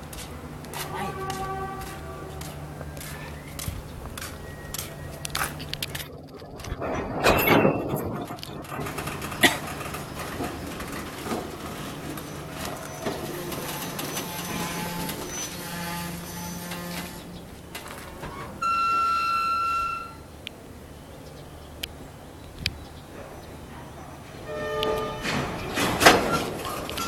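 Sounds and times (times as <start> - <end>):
train rumbling and clanking: 0.0 - 21.0, 21.7 - 27.0
locomotive horn blast: 0.7 - 3.0, 11.7 - 20.3, 24.4 - 27.0.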